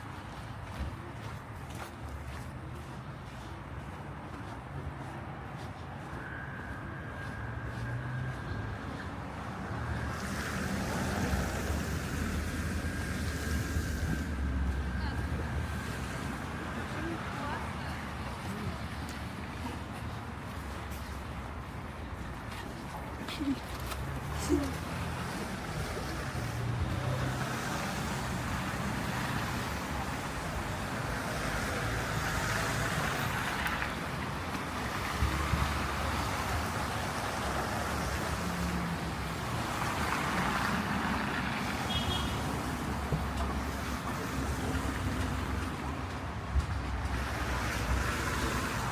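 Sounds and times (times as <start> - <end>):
rumble of car traffic: 0.0 - 48.9
tyre hiss on road: 10.0 - 14.8.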